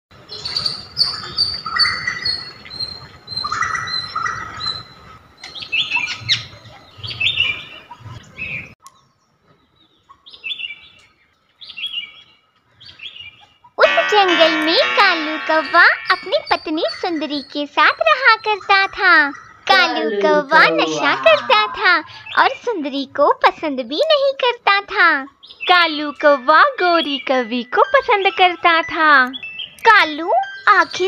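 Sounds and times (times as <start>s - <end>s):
birds chirping: 0.2s - 31.0s
tinkling music jingle: 13.8s - 19.8s.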